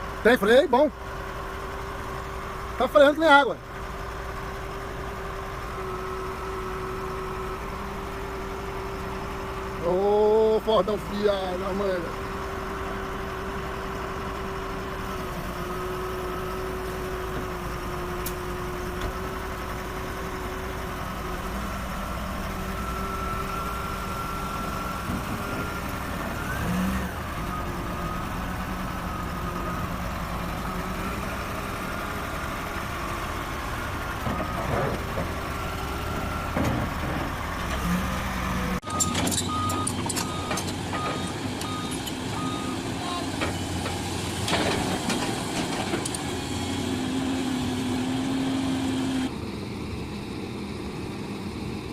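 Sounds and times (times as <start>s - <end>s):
truck engine running: 0.0s - 51.9s
reversing alarm beeping: 38.8s - 43.0s.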